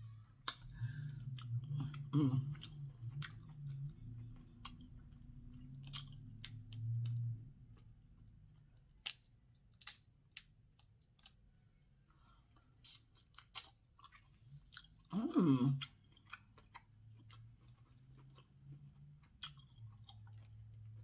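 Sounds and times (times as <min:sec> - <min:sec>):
chewing and wet mouth smacks: 0:00.4 - 0:07.9, 0:15.8 - 0:21.0.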